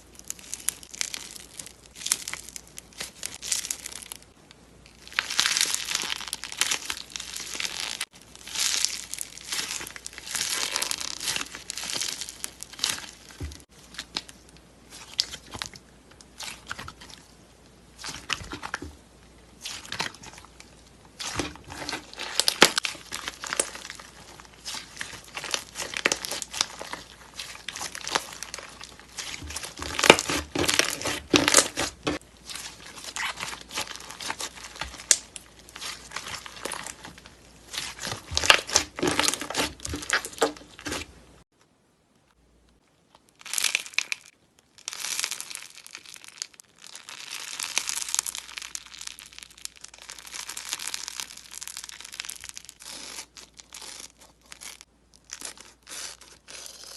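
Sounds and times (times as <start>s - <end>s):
slime crackling and popping: 0.0s - 41.4s, 43.1s - 56.9s.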